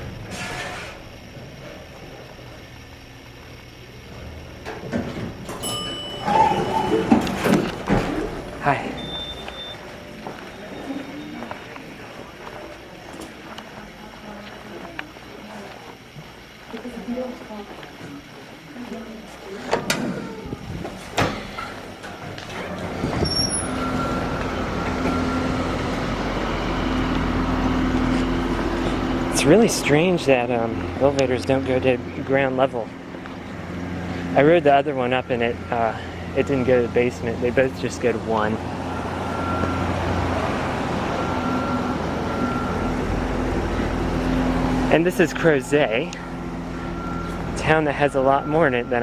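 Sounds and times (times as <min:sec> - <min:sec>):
elevator doors sliding open: 0:04.7 - 0:10.9, 0:19.6 - 0:26.6
elevator chime: 0:05.4 - 0:07.6, 0:08.6 - 0:11.5, 0:23.2 - 0:25.9, 0:34.4 - 0:43.1, 0:45.1 - 0:49.0
vehicle engine rumbling: 0:19.4 - 0:49.0.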